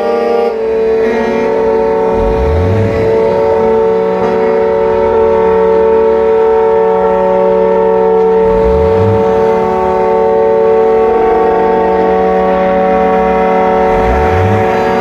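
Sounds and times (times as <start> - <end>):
truck air horns chord: 0.0 - 15.0
low rising tone: 2.0 - 6.4, 8.2 - 15.0.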